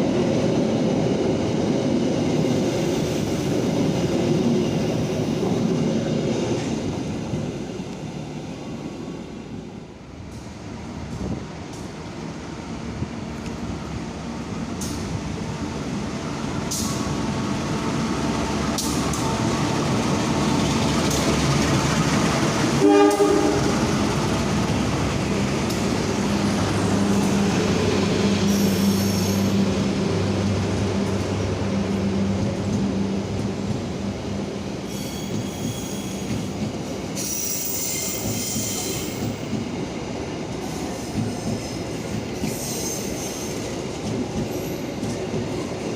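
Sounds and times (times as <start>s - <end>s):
train running: 0.0s - 45.9s
train horn toot: 22.8s - 23.9s
wheel squeals: 34.9s - 36.5s.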